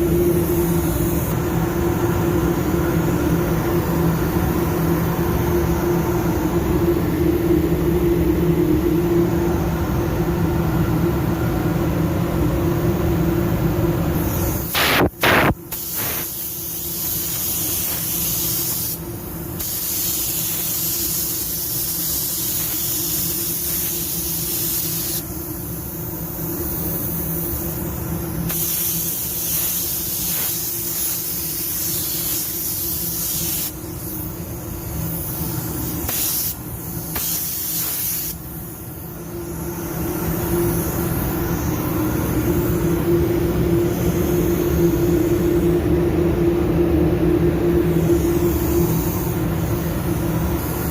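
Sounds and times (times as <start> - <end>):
paint spray gun hissing: 0.0 - 1.4, 14.2 - 42.8, 48.0 - 50.9
steady low hum: 0.0 - 50.9.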